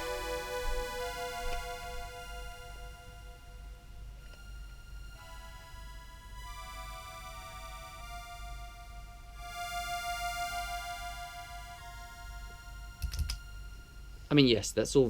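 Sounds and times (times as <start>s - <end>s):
sharp clicks: 13.0s - 13.4s.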